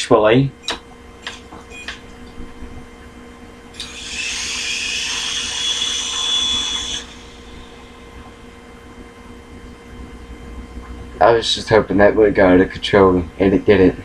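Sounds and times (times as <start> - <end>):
switch click: 0.6 - 2.0
toy helicopter motor whine: 3.8 - 8.4.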